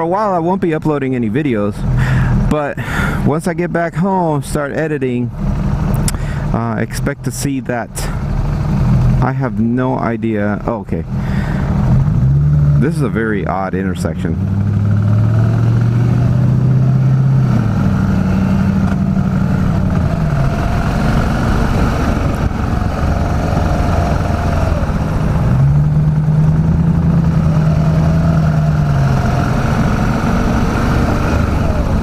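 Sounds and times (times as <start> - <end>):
motorcycle engine running: 13.9 - 32.0.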